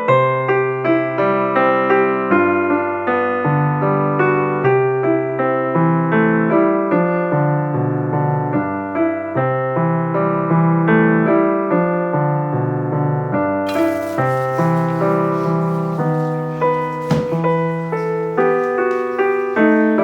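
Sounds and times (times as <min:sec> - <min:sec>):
hiss: 0:13.7 - 0:20.0
piano music: 0:13.7 - 0:20.0.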